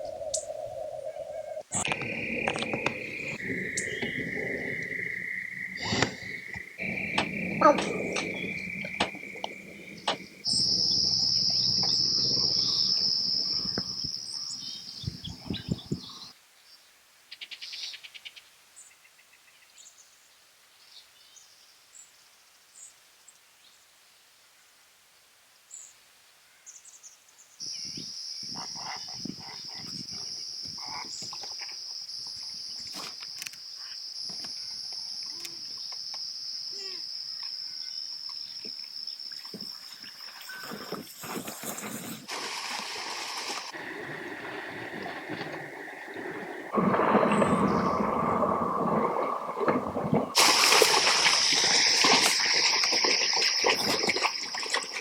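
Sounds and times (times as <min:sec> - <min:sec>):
insect chorus buzzing: 0:00.0 - 0:16.3, 0:27.6 - 0:55.0
bird chirps: 0:00.2 - 0:16.3.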